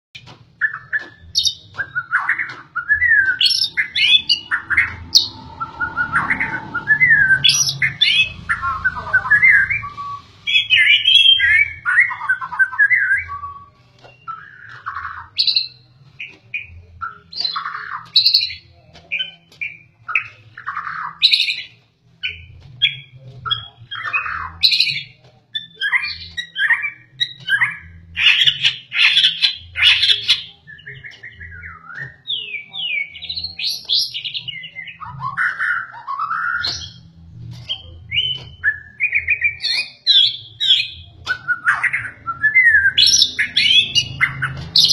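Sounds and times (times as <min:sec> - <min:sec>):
bird singing whistled phrases: 0:00.6 - 0:15.8, 0:37.7 - 0:44.9.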